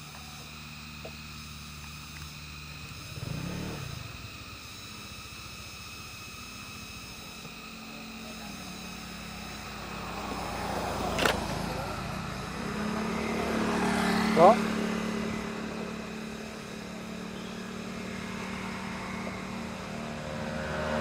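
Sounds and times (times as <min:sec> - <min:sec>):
vehicles passing: 0:00.0 - 0:21.0
sharp click: 0:11.1 - 0:11.4.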